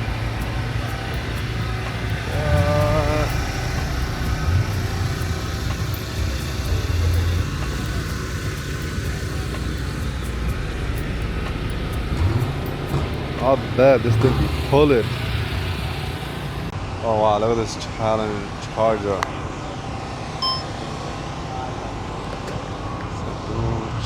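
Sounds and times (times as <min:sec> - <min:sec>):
wavering pitched sound: 0:00.0 - 0:16.7
car engines running: 0:00.0 - 0:16.8.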